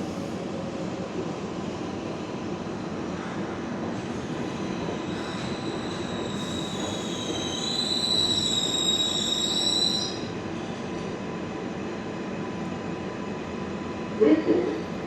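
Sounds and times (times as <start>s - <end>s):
subway train rumbling: 0.0s - 15.0s
train wheels squealing: 4.0s - 10.4s.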